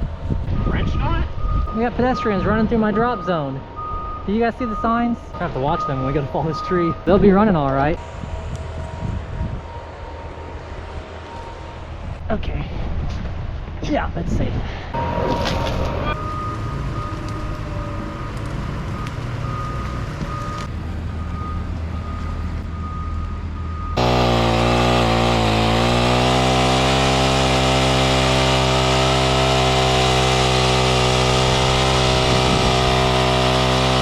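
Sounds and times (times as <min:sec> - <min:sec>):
thin whine: 0:15.0 - 0:18.0
engine running: 0:15.0 - 0:23.1, 0:23.8 - 0:34.0
loud engine idling: 0:23.9 - 0:34.0.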